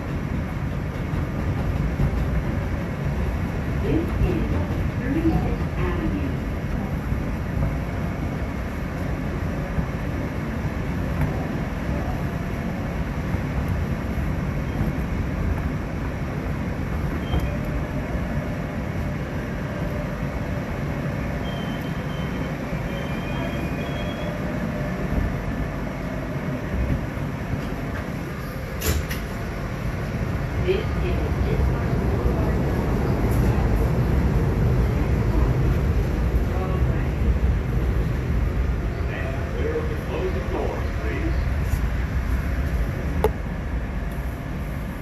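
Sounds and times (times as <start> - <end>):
train wheels rumbling on rails: 0.0 - 45.0
high wheel squeal: 21.4 - 24.4.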